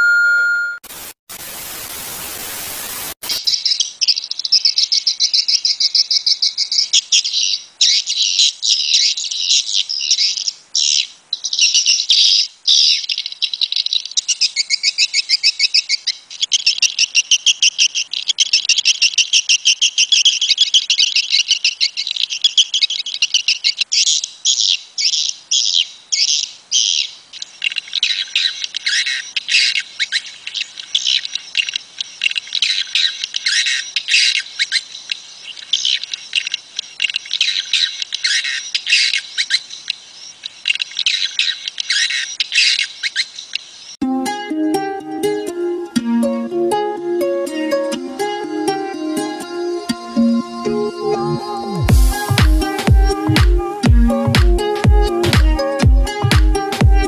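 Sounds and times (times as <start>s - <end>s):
ding: 0.0s - 0.8s
hiss: 0.9s - 3.6s.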